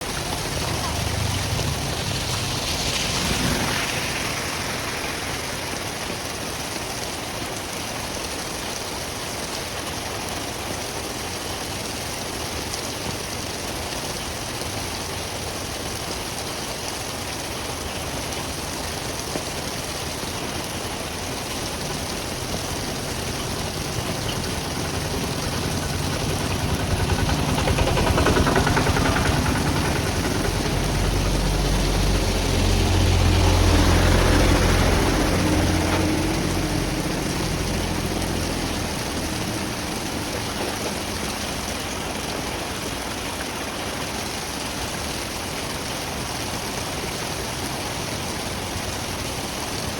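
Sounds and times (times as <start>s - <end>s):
vehicle engine: 0.0s - 6.8s, 18.3s - 43.1s
steady rain: 0.0s - 49.9s
water running into drain: 0.0s - 49.9s.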